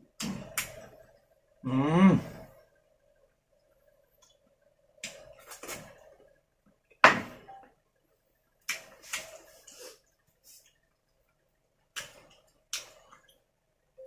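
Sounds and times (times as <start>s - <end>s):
faint steady hum: 0.0s - 14.0s
kitchen knocks and clatters: 6.9s - 7.6s.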